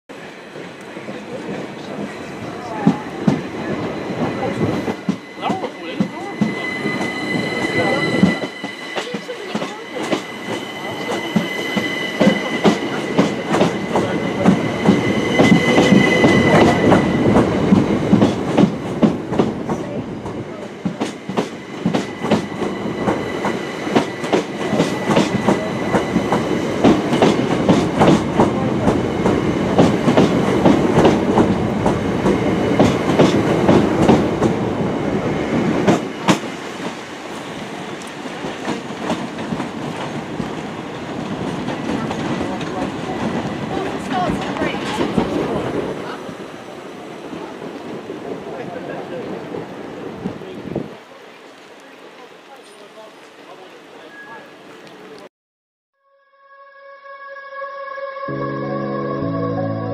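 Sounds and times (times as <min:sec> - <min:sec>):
train rumble: 0:00.1 - 0:51.1
train wheels clicking over rail joints: 0:09.0 - 0:34.6.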